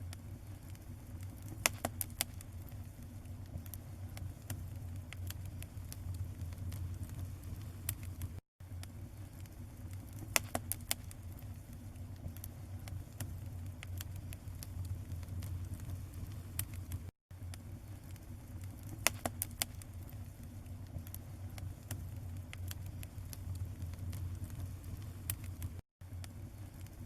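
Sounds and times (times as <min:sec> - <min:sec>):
bonfire crackling and popping: 0:00.0 - 0:27.0
low rumble: 0:02.6 - 0:08.8, 0:12.1 - 0:17.1.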